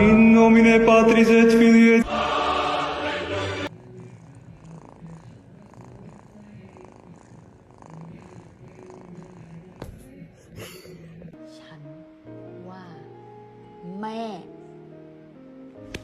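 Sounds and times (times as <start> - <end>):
chanted singing: 0.0 - 3.7
cat purring: 3.2 - 11.4.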